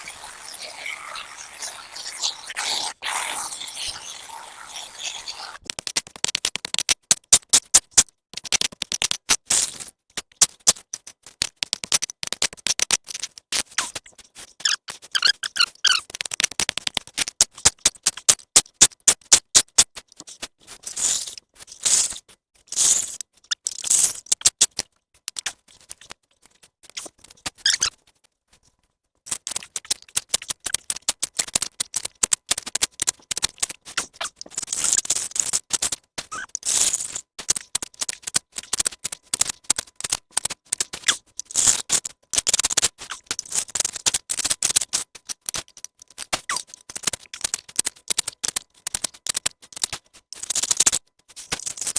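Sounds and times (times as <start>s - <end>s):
spade scraping: 0.0s - 5.6s.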